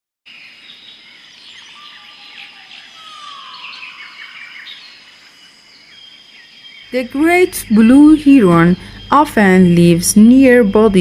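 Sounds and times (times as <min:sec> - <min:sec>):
birds chirping and calling: 0:00.4 - 0:11.0.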